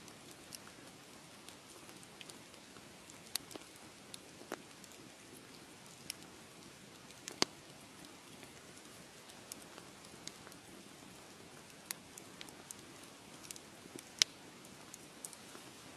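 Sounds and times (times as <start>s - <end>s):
wood fire crackling: 0.0s - 15.9s.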